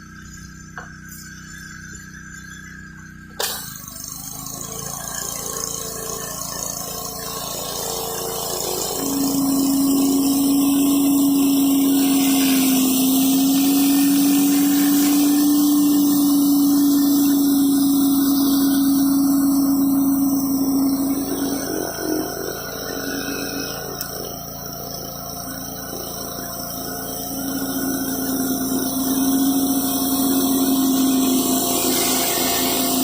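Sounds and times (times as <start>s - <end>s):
steady engine hum: 0.0s - 33.0s
sharp click: 3.3s - 3.8s
pressure washer spraying: 3.4s - 33.0s.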